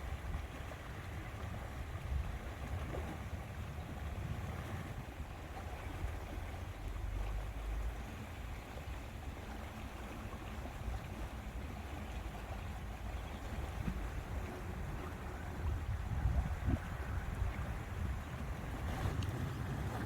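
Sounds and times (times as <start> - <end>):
wind rumbling on microphone: 0.0 - 7.8, 11.9 - 20.0
lake water lapping: 0.0 - 20.0.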